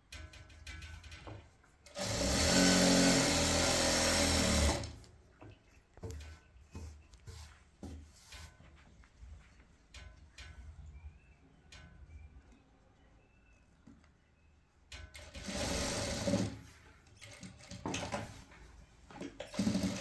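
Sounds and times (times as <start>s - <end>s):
faint clicks and knocks: 0.0s - 2.0s, 5.0s - 12.7s
small electric motor running: 2.0s - 4.9s.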